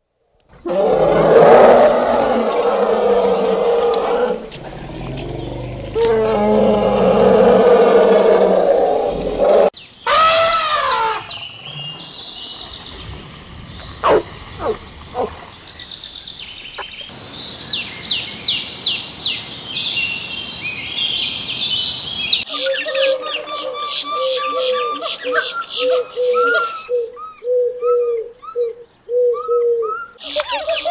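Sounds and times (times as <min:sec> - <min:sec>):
rising-and-falling cry: 0:00.6 - 0:11.4
drawn-out pitched animal call: 0:00.6 - 0:11.5, 0:22.5 - 0:26.8
falling whistled bird calls: 0:00.7 - 0:17.1, 0:20.6 - 0:30.9.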